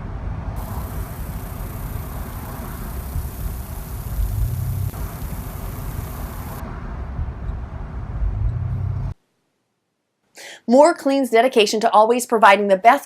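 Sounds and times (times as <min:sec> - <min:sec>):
vehicle engine rumbling: 0:00.0 - 0:09.2.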